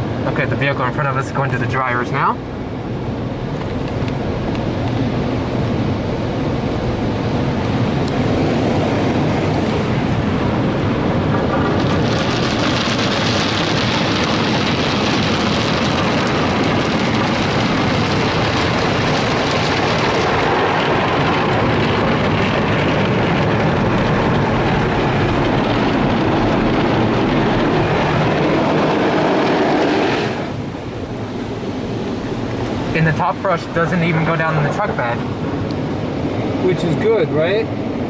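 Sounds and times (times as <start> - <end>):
water spray rushing: 26.9 - 35.3.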